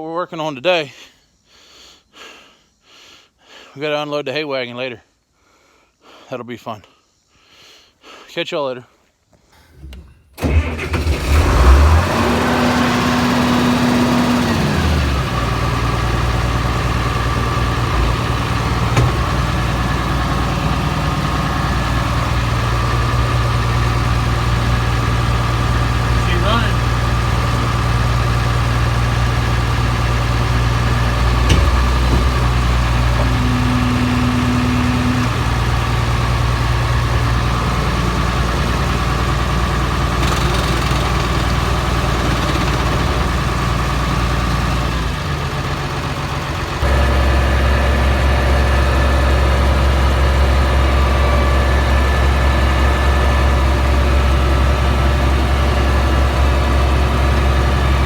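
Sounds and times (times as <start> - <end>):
engine idling: 9.6 - 58.0
knock: 19.0 - 19.4.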